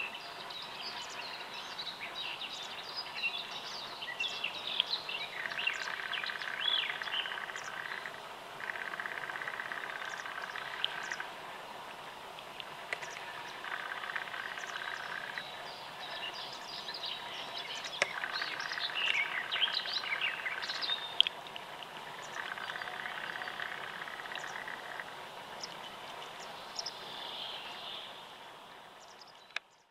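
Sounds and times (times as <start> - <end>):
birds chirping and singing: 0.0 - 11.2, 13.0 - 21.3, 22.1 - 24.9.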